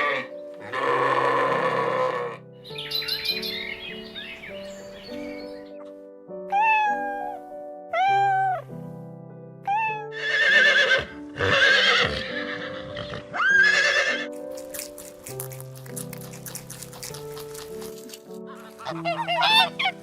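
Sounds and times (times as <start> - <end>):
horse whinnying: 0.0 - 2.4, 10.1 - 14.3, 18.8 - 20.0
background music with held notes: 0.0 - 20.0.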